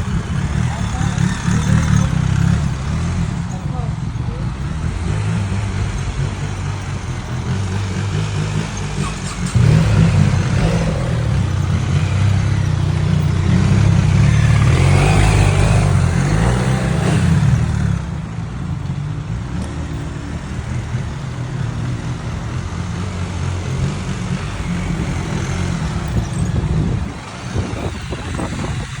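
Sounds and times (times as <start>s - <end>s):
motorcycle low rumble: 0.0s - 29.0s.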